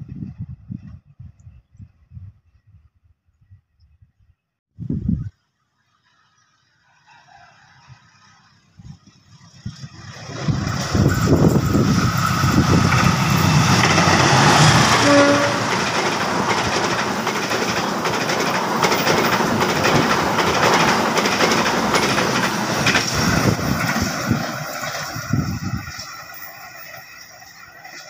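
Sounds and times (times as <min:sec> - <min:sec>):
diesel locomotive passing: 0:05.9 - 0:28.0
train wheels clattering over rails: 0:09.5 - 0:28.0.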